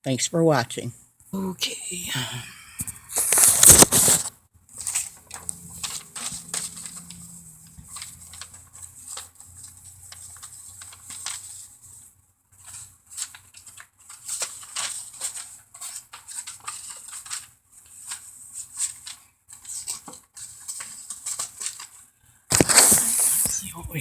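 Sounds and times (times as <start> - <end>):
rustling and clicks of handled objects: 2.6 - 24.0
faint low hum: 4.9 - 10.5.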